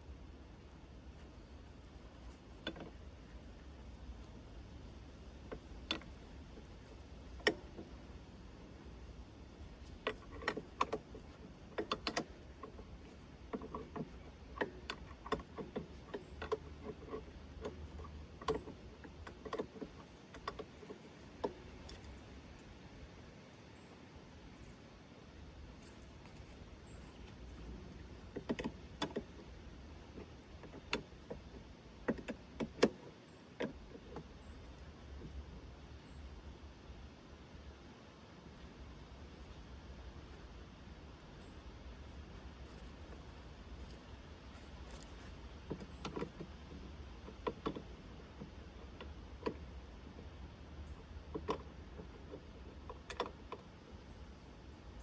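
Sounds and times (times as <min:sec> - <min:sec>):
low steady rumble: 0:00.0 - 0:55.0
sharp knocks and clicks: 0:01.1 - 0:22.2, 0:25.8 - 0:36.3, 0:41.4 - 0:50.3.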